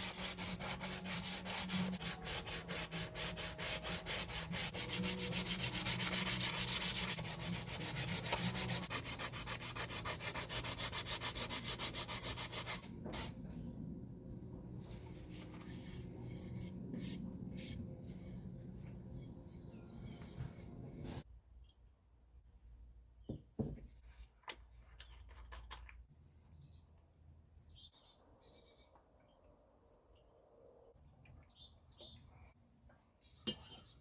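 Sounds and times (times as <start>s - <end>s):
hand-sanding strokes: 0.0s - 12.8s.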